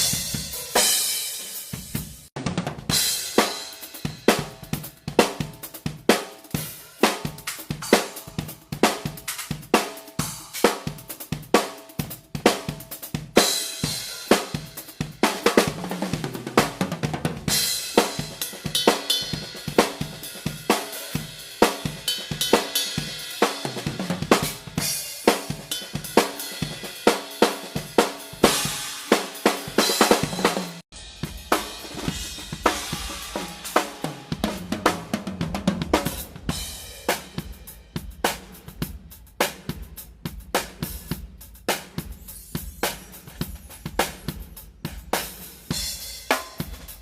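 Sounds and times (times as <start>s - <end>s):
snare drum: 0.0s - 47.0s
hi-hat: 3.2s - 16.7s, 35.9s - 47.0s
bass drum: 30.0s - 47.0s
cymbal strokes: 42.0s - 47.0s.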